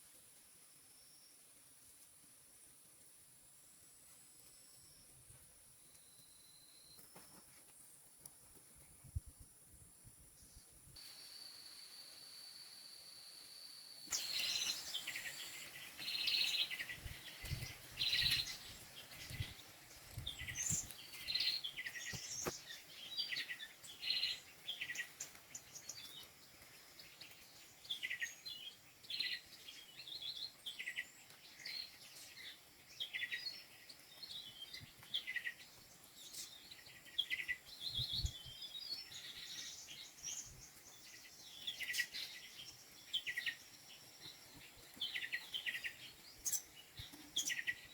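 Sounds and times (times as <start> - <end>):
birds chirping: 10.4 - 47.9.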